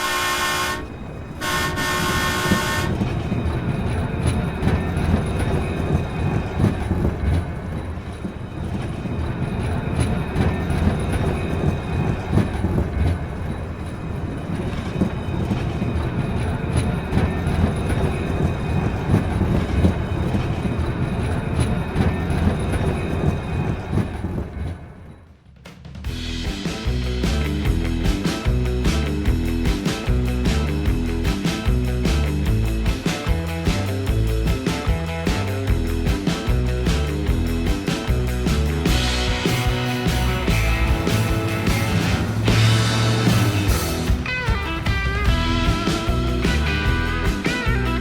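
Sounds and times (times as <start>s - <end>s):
train horn: 0.0s - 3.3s
train rumble: 0.0s - 48.0s
wheels clacking on rail joints: 0.0s - 48.0s.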